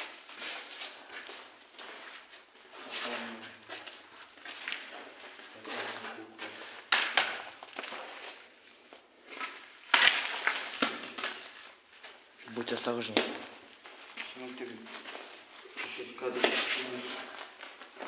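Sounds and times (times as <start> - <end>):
footsteps crunching over debris: 0.0 - 18.0
sharp cracks: 6.8 - 7.8, 9.8 - 11.4.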